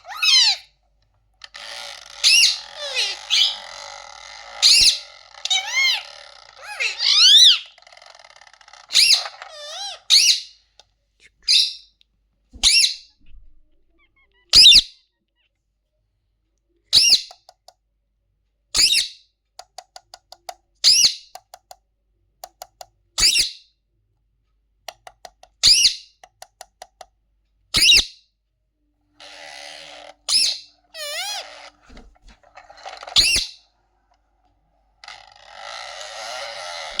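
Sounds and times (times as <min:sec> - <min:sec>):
parrot squawking: 0:00.0 - 0:00.7, 0:01.6 - 0:08.2, 0:08.8 - 0:10.6, 0:12.6 - 0:13.2, 0:14.0 - 0:15.5, 0:27.8 - 0:28.1, 0:29.2 - 0:31.8, 0:33.2 - 0:33.6
harsh rasping noise: 0:01.4 - 0:10.1, 0:35.0 - 0:37.0
parrot clicking: 0:19.6 - 0:21.8, 0:22.4 - 0:23.0, 0:24.8 - 0:27.2.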